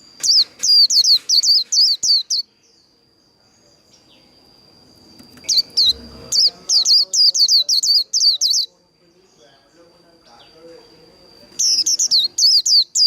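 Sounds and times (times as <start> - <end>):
bird singing sharp high notes: 5.4 - 8.7, 11.6 - 13.0.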